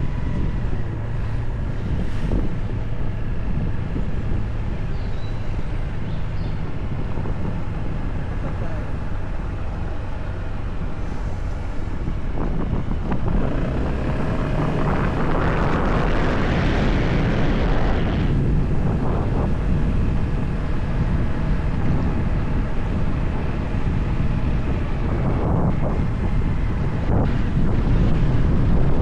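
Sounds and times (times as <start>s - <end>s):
motorcycle engine rumble: 0.0s - 29.0s
wind noise on microphone: 0.0s - 29.0s
rushing noise: 10.8s - 29.0s.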